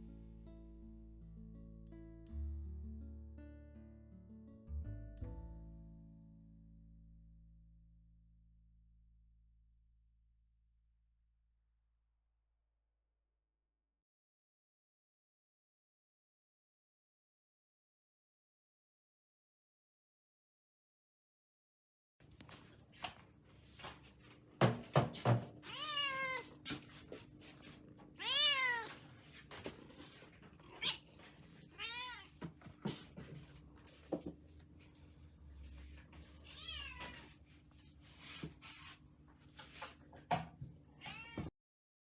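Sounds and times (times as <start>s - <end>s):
knocks and thumps: 24.6s - 25.6s
cat meowing: 25.6s - 26.6s, 28.2s - 29.0s, 29.9s - 32.4s, 36.4s - 37.3s, 41.0s - 41.5s.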